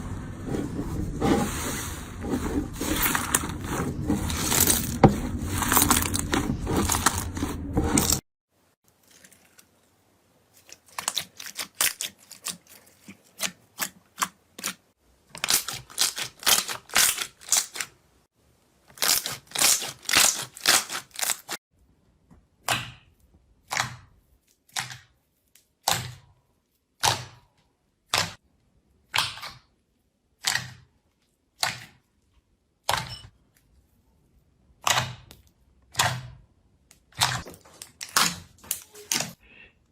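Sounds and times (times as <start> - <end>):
slime crunching: 2.3 - 8.2, 10.5 - 14.8.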